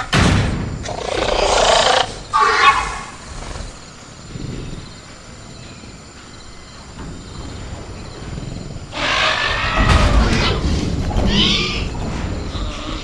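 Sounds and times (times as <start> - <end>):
faint crickets: 0.0 - 13.0
creature growling and roaring: 0.8 - 4.0.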